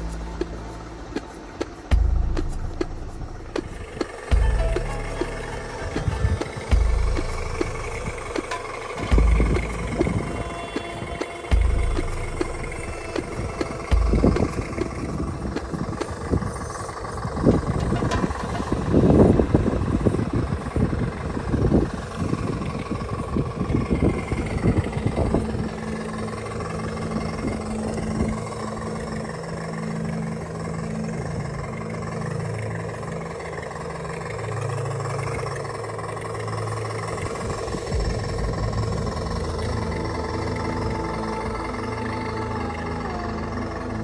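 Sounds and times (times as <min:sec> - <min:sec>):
model car motor drone: 0:03.4 - 0:44.0.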